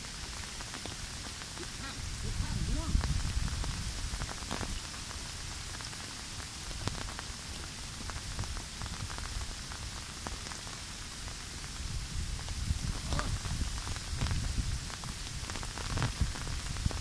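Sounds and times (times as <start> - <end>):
rain falling: 0.0 - 17.0
low wind rumble: 1.9 - 5.7, 11.5 - 17.0.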